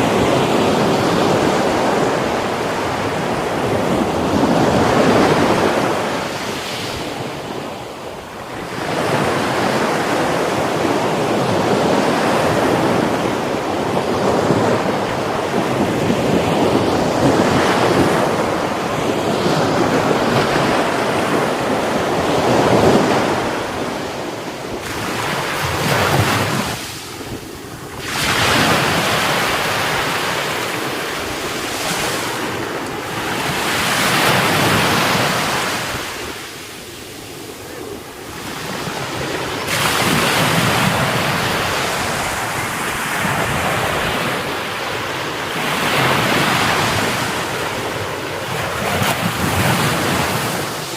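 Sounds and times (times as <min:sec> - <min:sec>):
surf breaking on beach: 0:00.0 - 0:50.9
wind buffeting microphone: 0:00.0 - 0:50.9.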